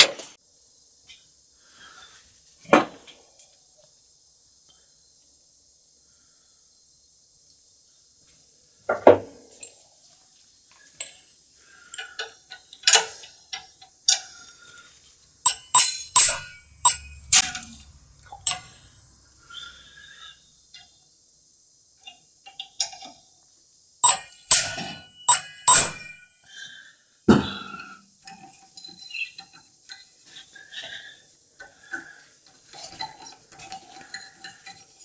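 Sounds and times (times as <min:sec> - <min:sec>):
metal tools clinking: 0:00.0 - 0:00.4, 0:15.4 - 0:19.0, 0:33.0 - 0:35.0.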